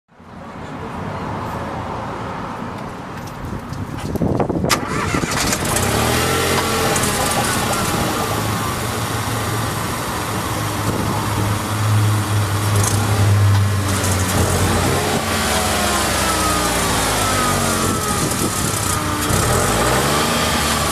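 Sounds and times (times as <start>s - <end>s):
car engine starting and idling: 4.6s - 20.9s.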